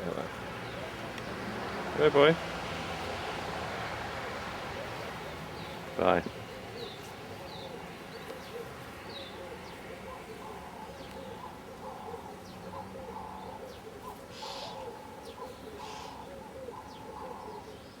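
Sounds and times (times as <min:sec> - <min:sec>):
doves cooing: 0:00.0 - 0:18.0
bird chirps: 0:04.8 - 0:18.0.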